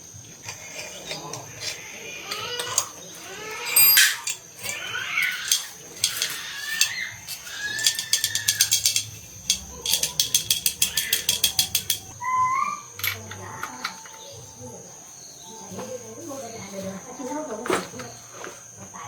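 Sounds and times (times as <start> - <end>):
mechanical clicking: 3.8 - 12.2.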